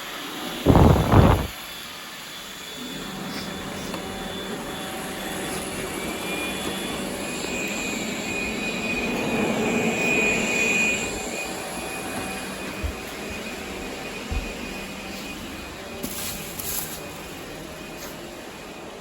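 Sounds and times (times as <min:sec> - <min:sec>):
robot vacuum motor whine: 0:00.7 - 0:01.5.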